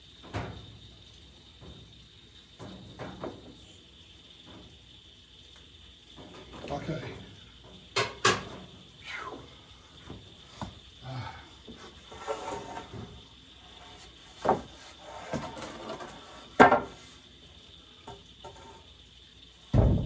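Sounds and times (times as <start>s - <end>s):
lumber and tools clattering: 13.9s - 17.1s.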